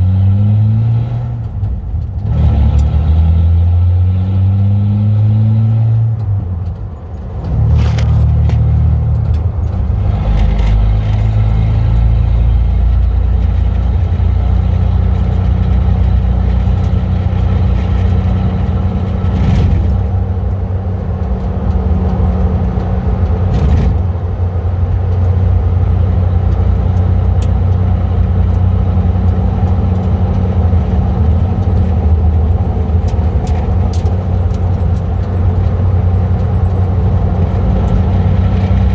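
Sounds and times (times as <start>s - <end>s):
deep exhaust drone: 0.0s - 38.9s.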